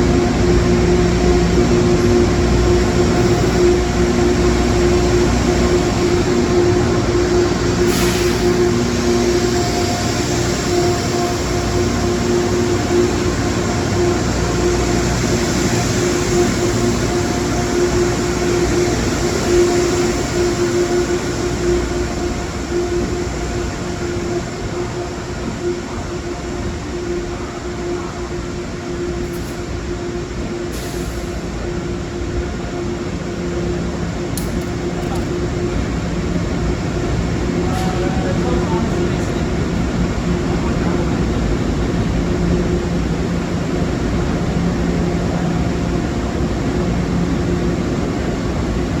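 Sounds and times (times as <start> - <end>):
steady hum: 0.0 - 30.7
train wheels rumbling on rail: 0.0 - 49.0.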